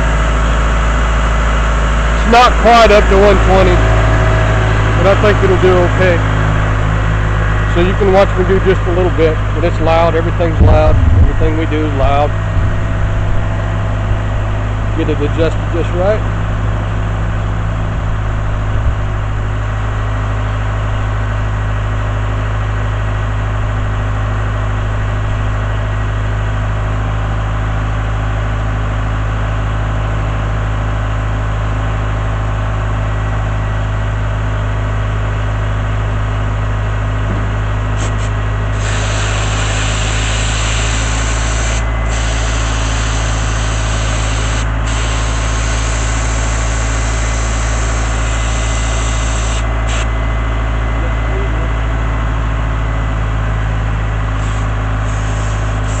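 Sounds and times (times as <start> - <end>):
air compressor droning: 0.0 - 56.0
sandblaster hissing: 38.0 - 50.1, 54.4 - 56.0.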